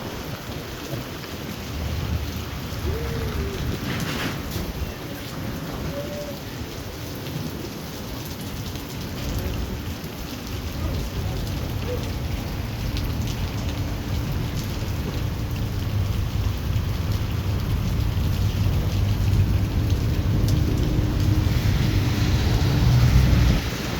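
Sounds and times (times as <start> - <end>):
heavy rain pouring: 0.0 - 23.9
low thunder rumble: 9.2 - 23.9.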